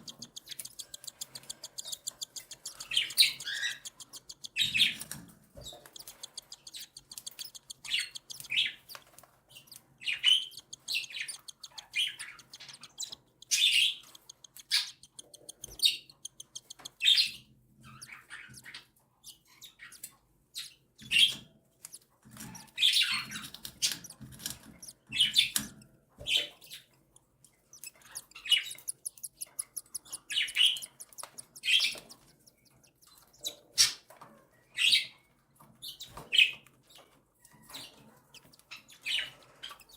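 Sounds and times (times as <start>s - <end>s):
bird chicks begging calls: 0.0s - 18.8s, 27.6s - 34.0s.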